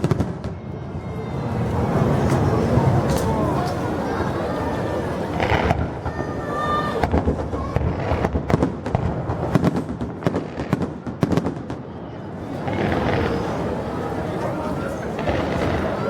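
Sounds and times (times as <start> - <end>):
fireworks banging and crackling: 0.0 - 0.7, 4.6 - 16.0.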